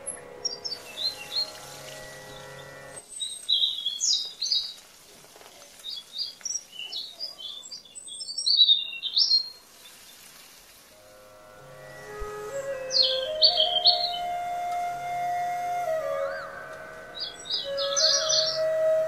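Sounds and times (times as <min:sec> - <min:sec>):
small birds chirping: 0:00.0 - 0:10.3, 0:16.2 - 0:19.0.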